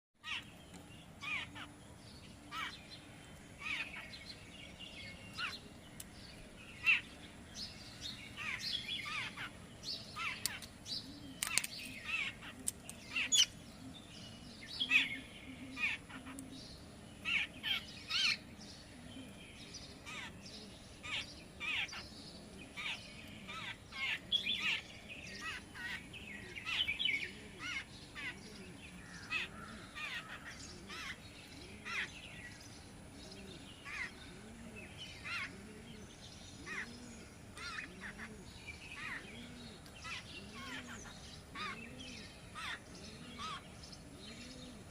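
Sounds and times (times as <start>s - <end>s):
birds chirping: 0.2s - 44.9s.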